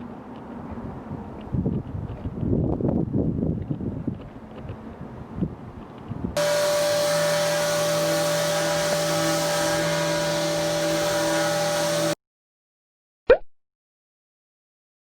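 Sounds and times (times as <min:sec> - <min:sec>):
faint wind noise: 0:00.5 - 0:07.1
motorised machine whirring: 0:06.4 - 0:12.2.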